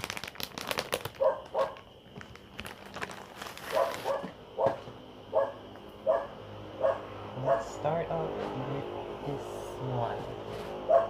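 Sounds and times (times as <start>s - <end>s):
plastic packaging crinkling: 0.0s - 4.3s
dog barking: 1.2s - 1.8s, 3.7s - 7.8s.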